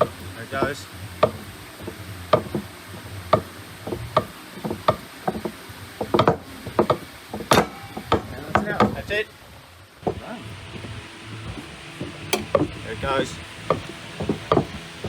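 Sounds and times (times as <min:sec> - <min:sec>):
faint low hum: 0:10.0 - 0:15.0.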